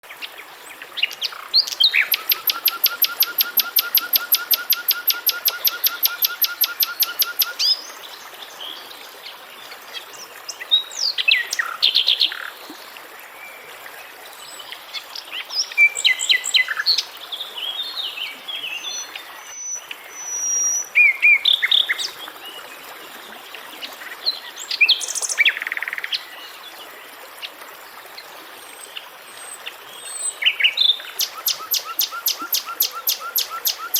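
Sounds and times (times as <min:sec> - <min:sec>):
bird chirps and calls: 0:01.1 - 0:07.8, 0:30.0 - 0:33.9
bird rapid trill: 0:02.1 - 0:07.5.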